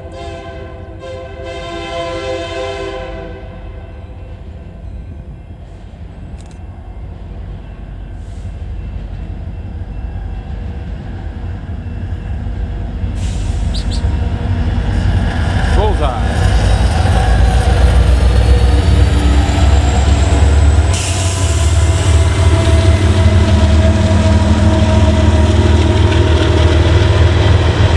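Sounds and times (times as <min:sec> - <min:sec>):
locomotive air horn: 0:00.0 - 0:04.0, 0:20.8 - 0:26.3
low rumble of train: 0:00.0 - 0:27.9.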